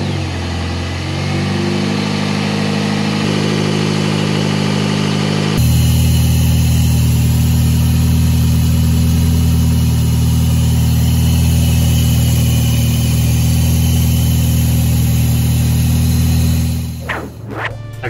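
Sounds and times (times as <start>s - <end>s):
car engine idling: 3.7s - 17.0s.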